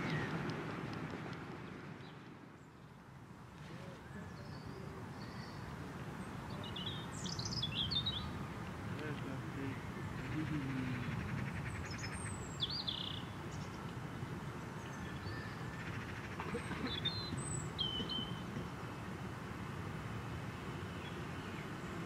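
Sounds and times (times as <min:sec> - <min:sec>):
small birds chirping: 0:03.8 - 0:18.9.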